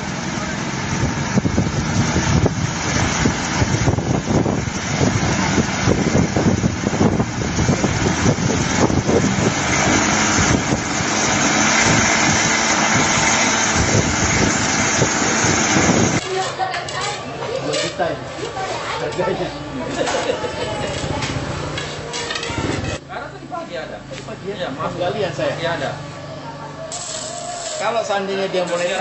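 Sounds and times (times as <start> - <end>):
engine running: 0.0 - 16.5.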